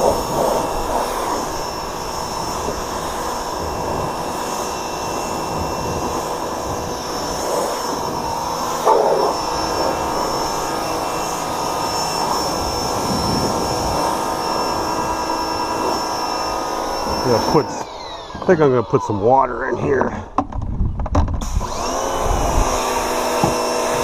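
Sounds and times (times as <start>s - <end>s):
water spraying from wand: 0.0s - 17.8s
pressure washer motor whine: 0.0s - 20.2s, 21.4s - 24.0s.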